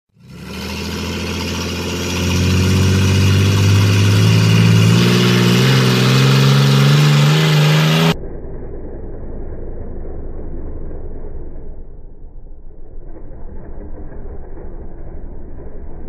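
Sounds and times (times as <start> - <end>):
truck engine revving: 0.1 - 11.8.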